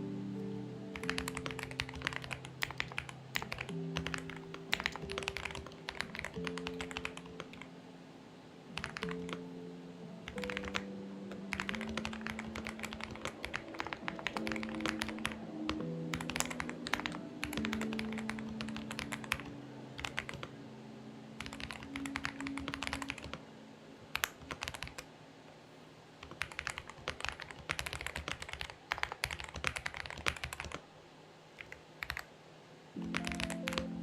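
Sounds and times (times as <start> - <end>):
mechanical keyboard typing: 0.9 - 7.7, 8.8 - 9.4, 10.2 - 20.5, 21.4 - 23.4, 24.1 - 25.1, 26.2 - 30.8, 31.6 - 32.3, 33.0 - 34.0.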